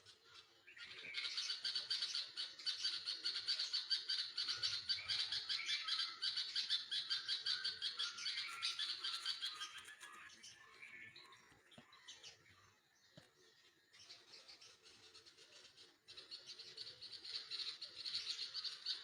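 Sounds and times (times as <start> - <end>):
baby birds chirping: 1.9 - 12.4.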